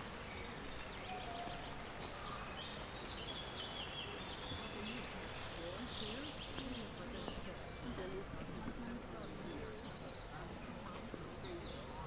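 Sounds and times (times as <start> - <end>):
outdoor background hush: 0.0 - 12.0
songbirds singing trills: 0.0 - 12.0.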